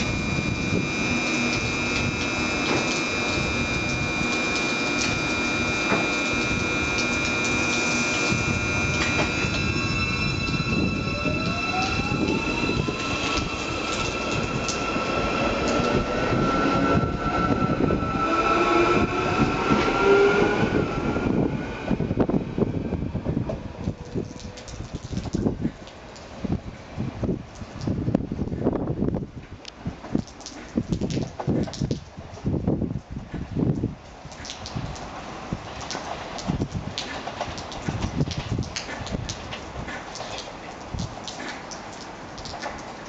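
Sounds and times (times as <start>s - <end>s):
wheel and rail noise: 0.0s - 25.2s, 34.5s - 43.0s
electric train inverter whine: 0.0s - 26.1s.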